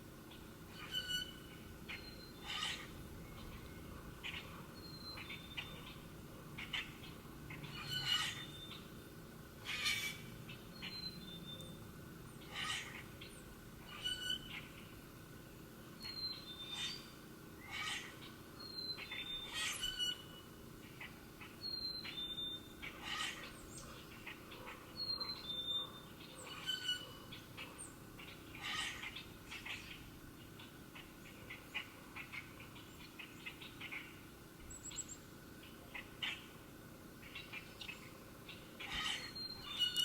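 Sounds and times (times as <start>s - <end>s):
bird chirps: 37.2s - 40.0s.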